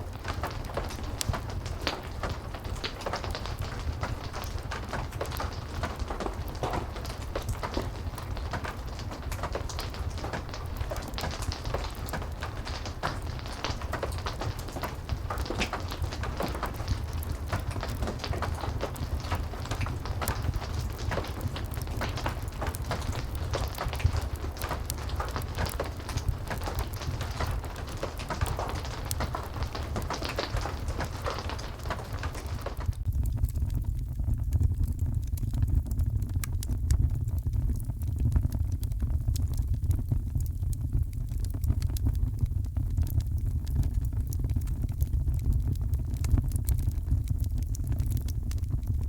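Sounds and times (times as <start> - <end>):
heavy rain hissing: 0.0 - 32.9
fireplace crackling: 0.0 - 49.0.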